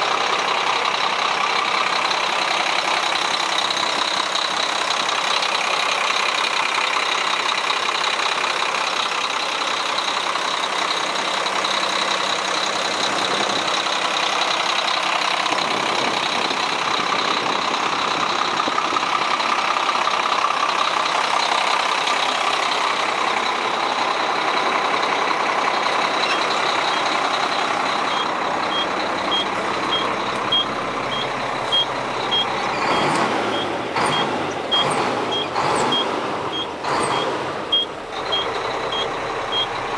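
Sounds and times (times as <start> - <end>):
diesel truck engine running: 0.0 - 39.9
backup alarm beeping: 28.0 - 39.8.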